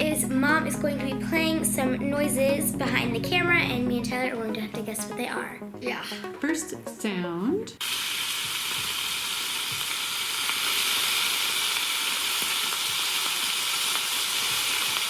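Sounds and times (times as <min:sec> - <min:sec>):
bacon sizzling in a pan: 0:07.8 - 0:15.0.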